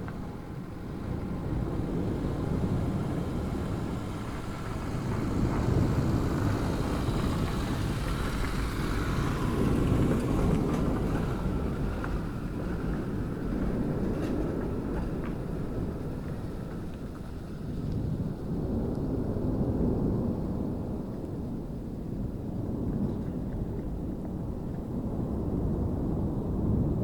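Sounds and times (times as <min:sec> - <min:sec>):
volcano rumbling roar: 0:00.0 - 0:16.6.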